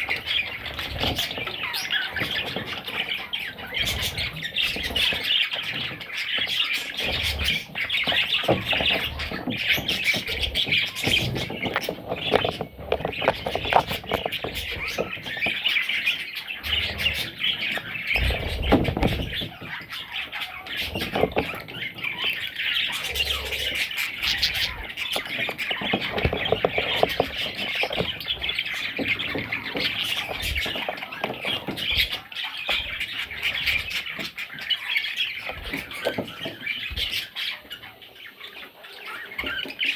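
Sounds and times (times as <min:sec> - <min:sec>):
budgerigars squawking and chattering: 0:00.0 - 0:39.9
low thuds and rustles: 0:18.1 - 0:19.9.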